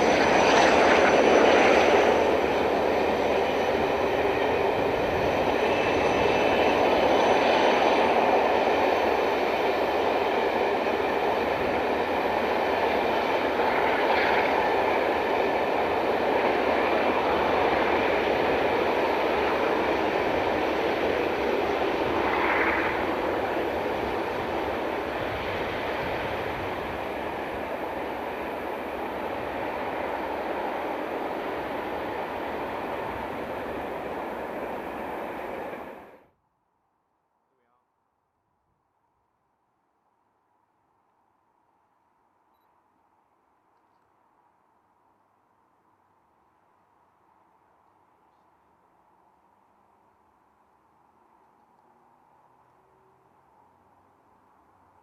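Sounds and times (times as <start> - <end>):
train wheels rumbling on rails: 0.0 - 36.2.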